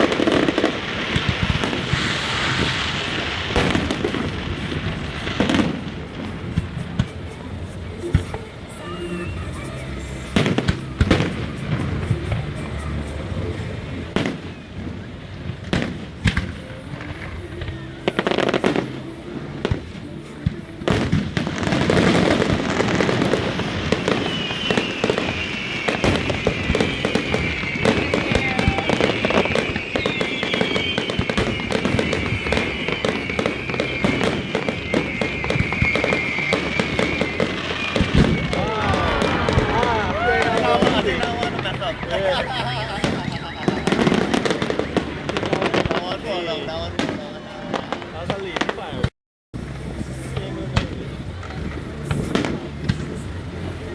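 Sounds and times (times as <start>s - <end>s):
fireworks bangs and crackles: 0.0s - 53.9s
fireworks whistles falling in pitch: 20.5s - 49.1s.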